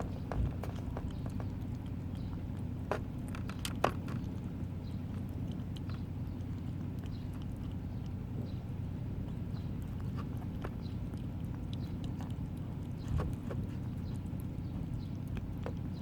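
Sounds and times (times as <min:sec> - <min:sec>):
kittens chewing and licking: 0:00.0 - 0:16.0
steady low hum: 0:00.0 - 0:16.0.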